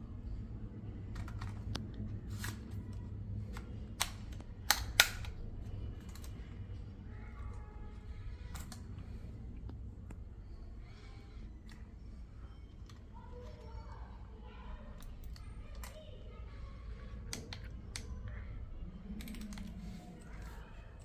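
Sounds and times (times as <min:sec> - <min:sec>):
steady low hum: 0:00.0 - 0:21.0
hard plastic clicks and snaps: 0:01.2 - 0:06.5, 0:15.0 - 0:16.0, 0:17.2 - 0:18.4.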